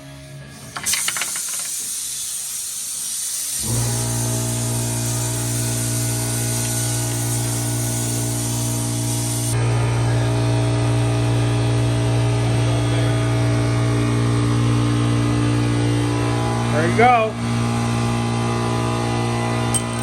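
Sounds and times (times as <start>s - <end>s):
steady hiss: 0.8s - 9.6s
low machine hum: 3.6s - 20.0s.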